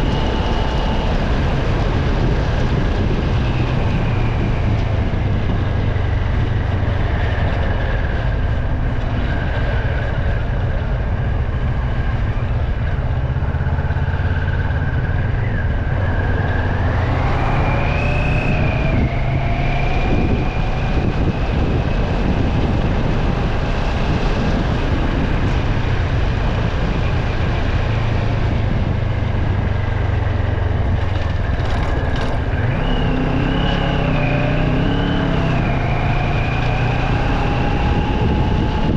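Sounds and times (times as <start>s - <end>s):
vehicle engine and road noise: 0.0s - 38.9s.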